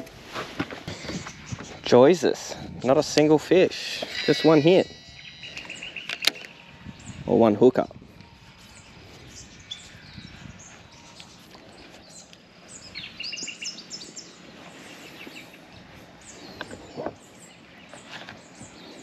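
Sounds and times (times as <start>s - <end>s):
faint outdoor background: 0.0s - 19.0s
small birds chirping: 0.8s - 19.0s.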